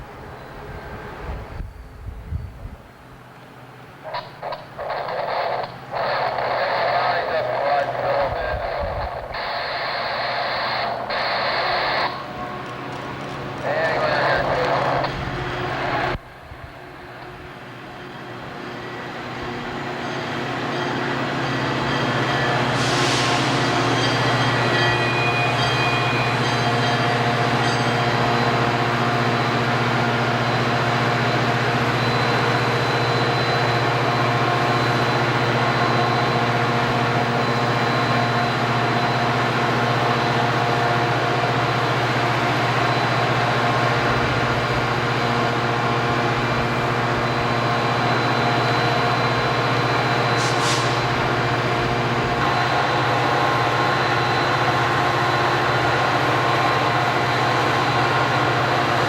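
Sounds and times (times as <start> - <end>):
train rumbling and rattling: 10.9 - 37.5.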